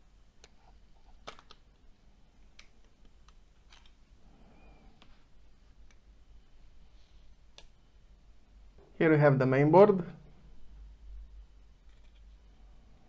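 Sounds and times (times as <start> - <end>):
phone parts clicking: 0.4 - 1.8, 2.5 - 4.0.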